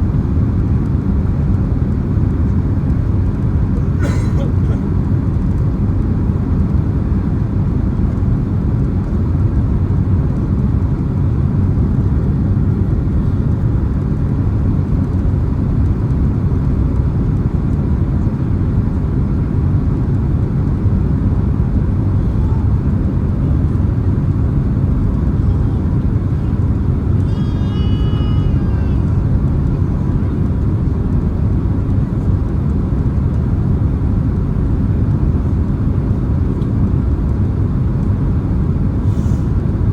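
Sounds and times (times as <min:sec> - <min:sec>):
airplane cabin engine rumble: 0:00.0 - 0:39.9
faint voice: 0:22.2 - 0:23.7, 0:25.2 - 0:30.6.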